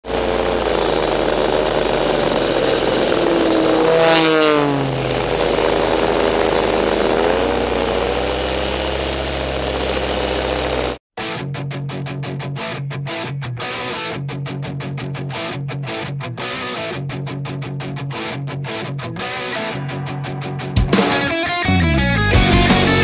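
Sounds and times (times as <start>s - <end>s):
paramotor engine drone: 0.0s - 11.0s
airplane passing close: 0.2s - 10.9s.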